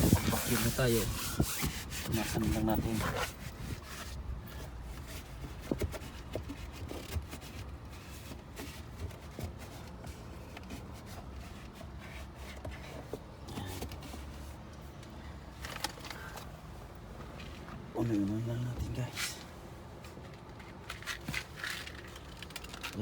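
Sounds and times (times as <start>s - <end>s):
rubbing and scuffing: 0.0s - 14.6s.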